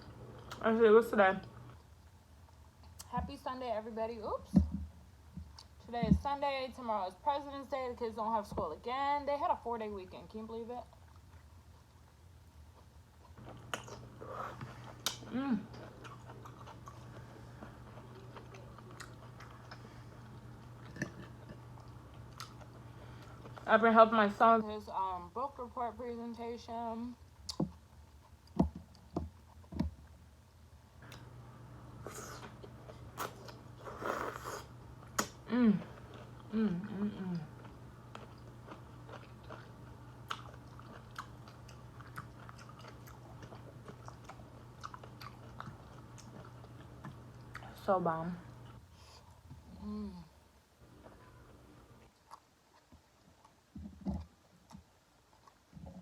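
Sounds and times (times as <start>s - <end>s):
steady low hum: 0.0s - 52.2s
wet chewing of food: 10.9s - 23.7s, 32.0s - 36.5s, 37.3s - 47.8s, 52.0s - 56.0s.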